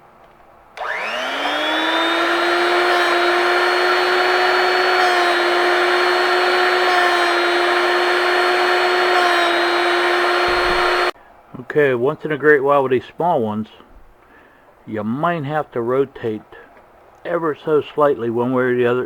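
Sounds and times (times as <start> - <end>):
grinding hiss: 0.8 - 11.1
sharpener motor whine: 0.8 - 11.2.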